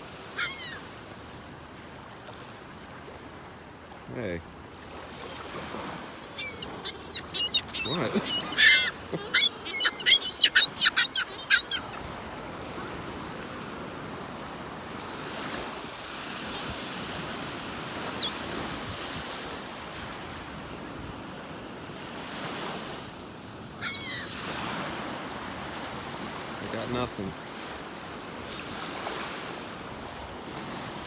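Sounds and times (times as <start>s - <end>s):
surf washing: 0.0s - 23.2s
gulls squawking: 0.3s - 0.9s, 5.1s - 15.6s, 16.3s - 19.5s, 23.8s - 24.4s.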